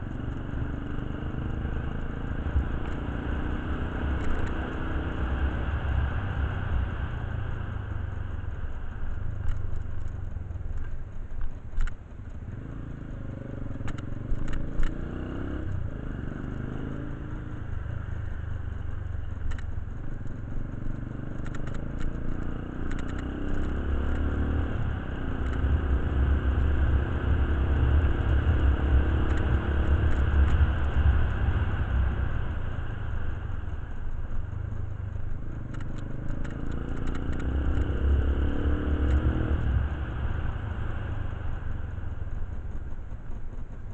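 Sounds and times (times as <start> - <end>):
motorcycle engine rumbling: 0.0 - 43.9
small clicks and clatter: 4.1 - 4.7, 7.8 - 15.9, 16.9 - 25.9, 29.2 - 31.3, 33.1 - 38.0, 41.3 - 43.9.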